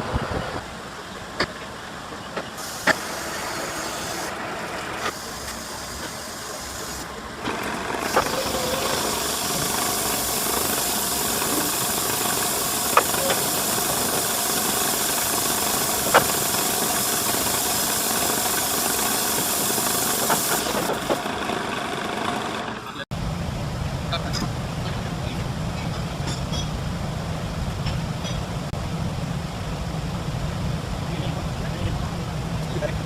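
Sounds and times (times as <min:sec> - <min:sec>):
loud steady hiss: 0:00.0 - 0:21.5.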